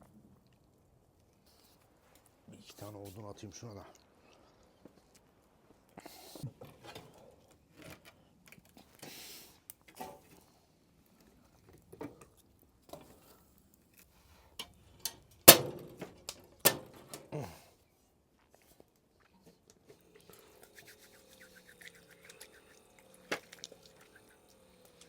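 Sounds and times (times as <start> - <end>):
logs knocking and clicking: 15.5 - 17.3.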